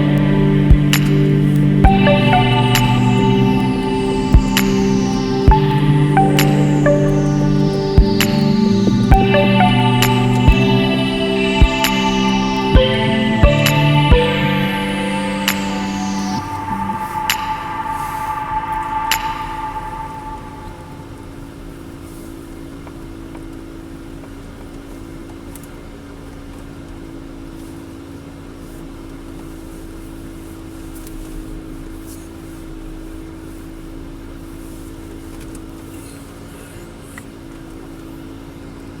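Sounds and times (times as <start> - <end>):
road noise: 0.0 - 26.9.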